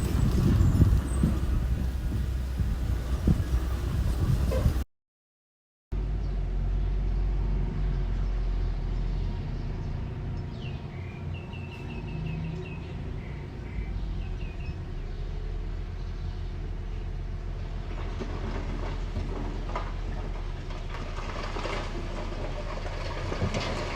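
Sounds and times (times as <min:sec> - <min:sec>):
construction machine engine rumbling: 0:00.0 - 0:04.8, 0:06.0 - 0:23.9
bird chirping: 0:07.9 - 0:17.0.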